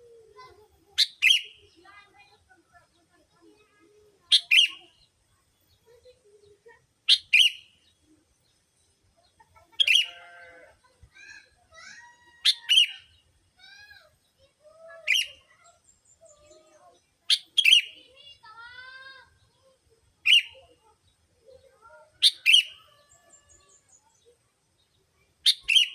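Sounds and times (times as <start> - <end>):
whistled bird chirps: 1.0 - 1.5, 4.3 - 4.8, 7.1 - 7.7, 12.4 - 13.0, 17.3 - 18.0, 20.2 - 20.6, 22.2 - 23.9, 25.4 - 25.9
bulbul calls: 1.0 - 1.9, 4.3 - 4.9, 7.1 - 7.7, 9.8 - 10.3, 12.4 - 13.1, 15.1 - 16.6, 17.2 - 18.0, 20.2 - 20.7, 21.9 - 24.4, 25.4 - 25.9.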